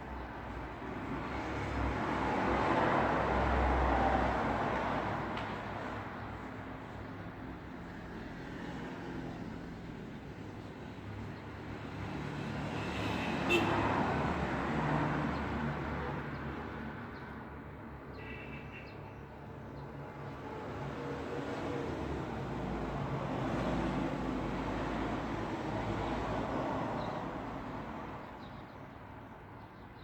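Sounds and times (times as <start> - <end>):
traffic hum: 0.0 - 18.8.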